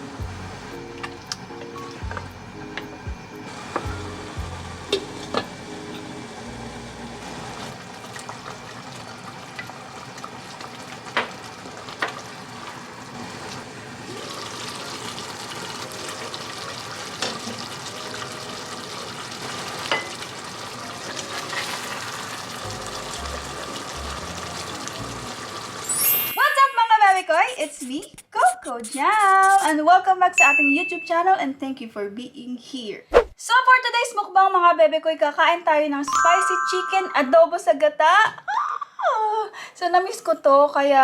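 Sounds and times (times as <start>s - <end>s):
food frying in a pan: 0.0s - 26.5s.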